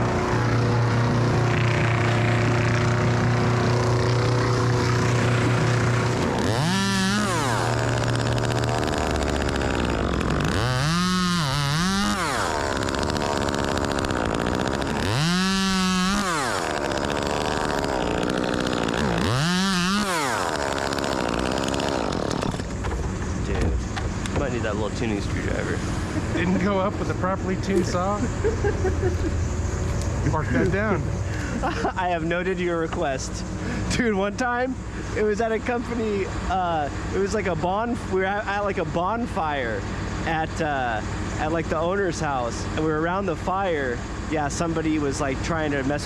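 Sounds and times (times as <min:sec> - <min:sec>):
chainsaw revving: 0:00.0 - 0:23.0
engine drone: 0:00.0 - 0:46.0.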